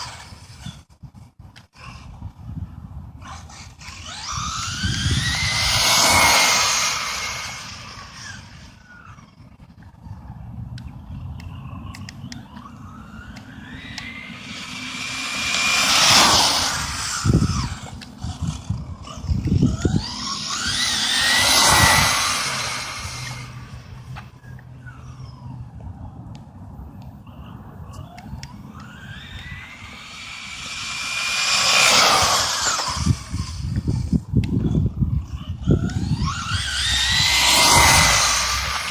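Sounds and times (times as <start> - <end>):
electric motor whine: 0.0 - 0.9, 1.8 - 38.9.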